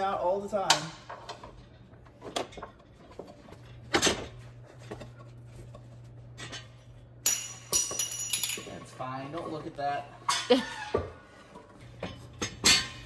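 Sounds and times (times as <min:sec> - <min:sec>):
metallic clatter with ring: 0:07.2 - 0:09.1
metal tools knocking and clanking: 0:07.3 - 0:09.0.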